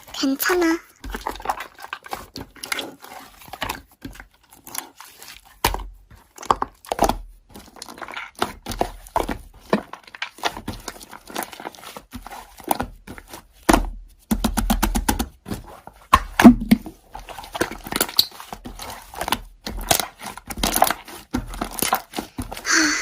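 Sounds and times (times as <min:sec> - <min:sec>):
slime crackling and popping: 0:16.1 - 0:22.4.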